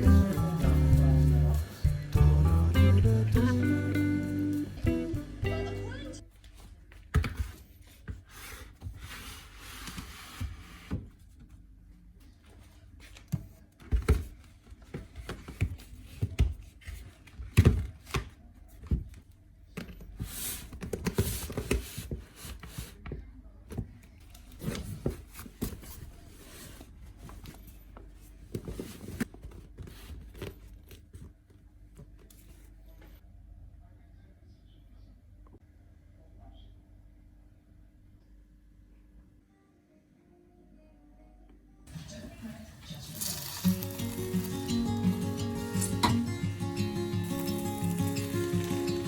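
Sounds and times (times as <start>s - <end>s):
objects knocking and scraping: 45.8s - 46.4s.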